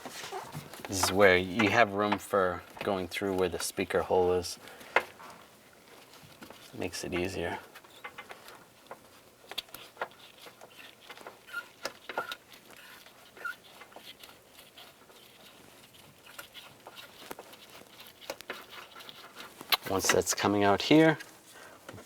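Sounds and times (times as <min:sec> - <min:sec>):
short squeaks: 0:00.0 - 0:00.7, 0:09.8 - 0:15.5
small clicks and rustling: 0:00.0 - 0:22.0.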